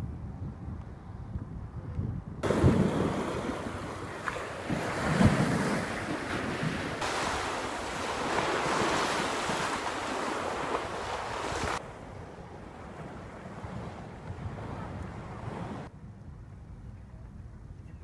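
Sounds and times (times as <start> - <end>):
wind buffeting microphone: 0.0 - 18.0
sea surf washing in: 2.4 - 15.9.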